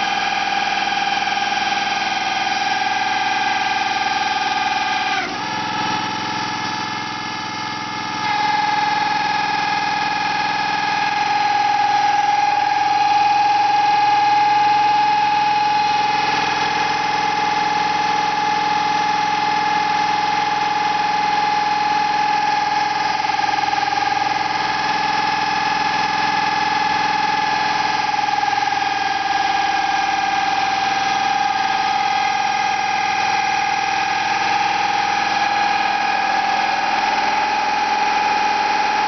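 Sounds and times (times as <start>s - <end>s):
hydraulics high-pitched whine: 0.0s - 39.0s.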